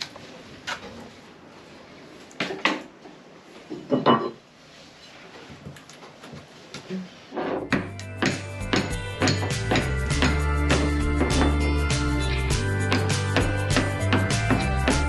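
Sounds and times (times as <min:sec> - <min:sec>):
hard objects knocking and clattering: 0:07.6 - 0:11.7
music with drum beat: 0:07.7 - 0:15.0.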